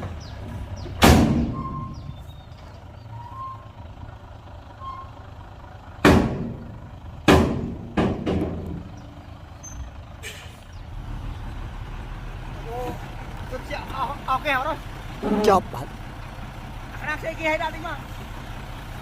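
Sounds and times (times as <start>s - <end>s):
diesel engine running low: 0.0s - 19.0s
loud sharp bangs: 1.0s - 1.7s, 6.0s - 8.9s.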